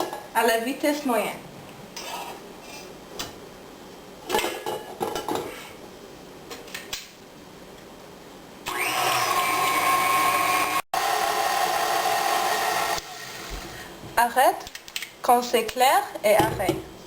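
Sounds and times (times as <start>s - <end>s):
electric stand mixer whining: 8.7s - 13.8s.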